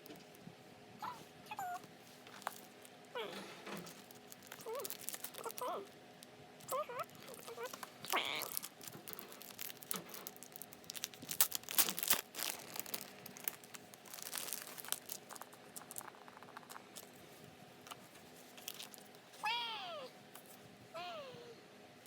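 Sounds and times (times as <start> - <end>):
packaging crinkling and tearing: 2.3 - 5.9, 6.6 - 17.2, 18.5 - 19.2.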